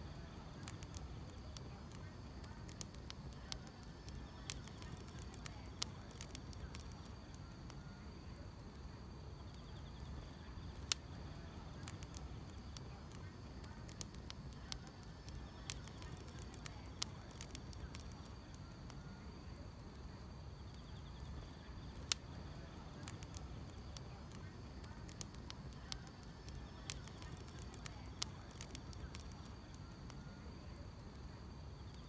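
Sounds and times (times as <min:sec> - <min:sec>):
wood fire crackling and popping: 0:00.0 - 0:07.9, 0:08.6 - 0:19.1, 0:19.8 - 0:30.3
insects chirping: 0:20.2 - 0:32.0.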